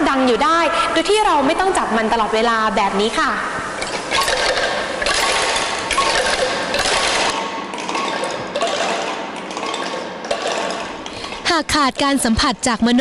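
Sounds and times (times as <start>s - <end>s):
bamboo angklung rattling: 3.8s - 11.5s.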